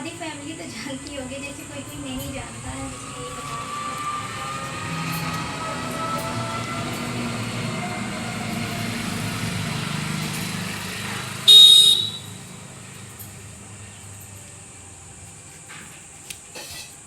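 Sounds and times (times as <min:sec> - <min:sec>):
outdoor rumble: 0:00.0 - 0:17.0
high-pitched horn toot: 0:11.5 - 0:12.4.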